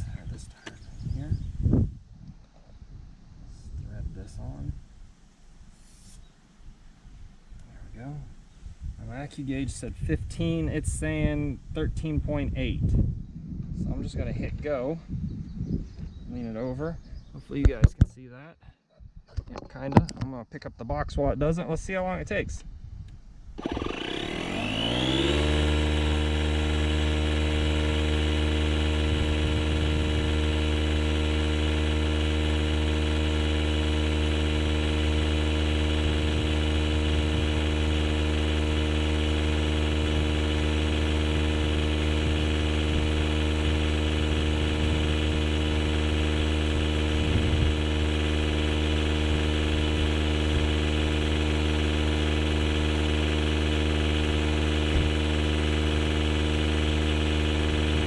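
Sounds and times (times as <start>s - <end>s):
tire inflator compressor humming: 23.5s - 58.0s.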